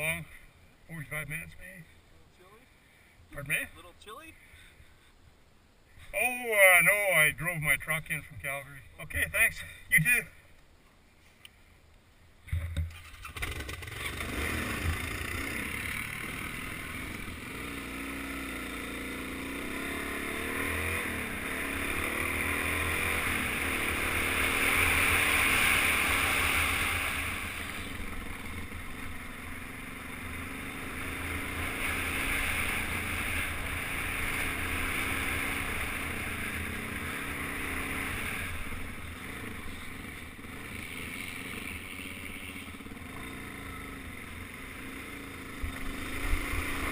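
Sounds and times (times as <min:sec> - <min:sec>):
dirt bike engine revving: 0:12.8 - 0:46.9.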